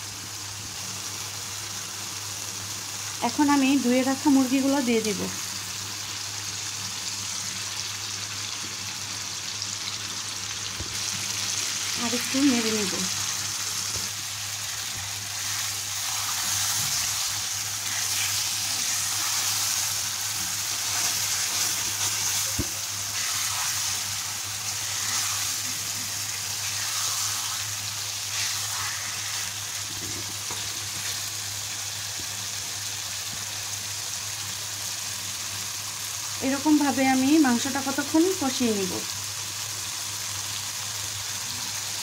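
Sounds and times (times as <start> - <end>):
chicken sizzling in hot oil: 0.0 - 42.0
spatula scraping a pan: 14.9 - 27.7.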